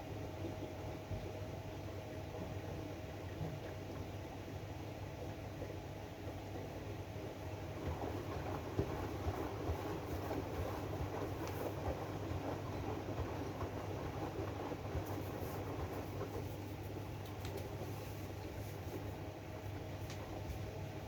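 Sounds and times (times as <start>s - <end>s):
washing machine hum and rumble: 0.0s - 21.0s.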